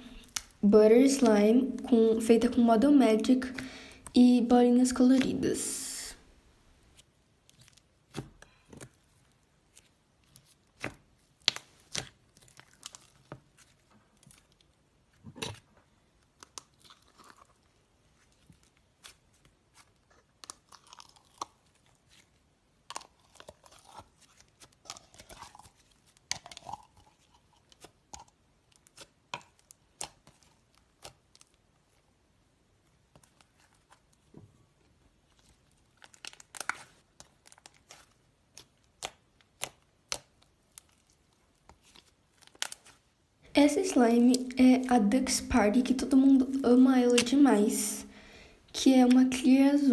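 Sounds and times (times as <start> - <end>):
soft squelches: 0.0 - 6.6, 43.5 - 49.9.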